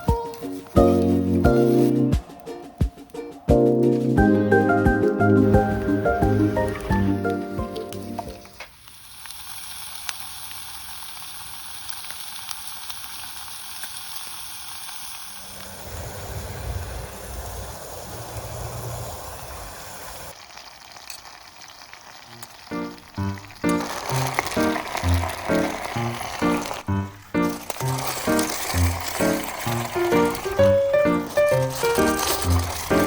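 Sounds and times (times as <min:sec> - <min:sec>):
background music: 0:00.0 - 0:08.4, 0:22.7 - 0:33.0
food sizzling in a pan: 0:00.0 - 0:33.0.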